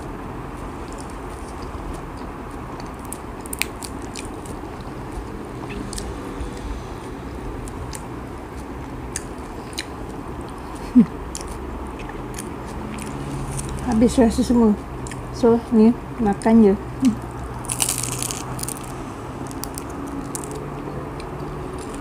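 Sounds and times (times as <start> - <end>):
chewing with soft crunches: 0.5 - 14.0, 15.0 - 15.3, 16.4 - 22.0
wet mouth clicks: 9.1 - 13.7.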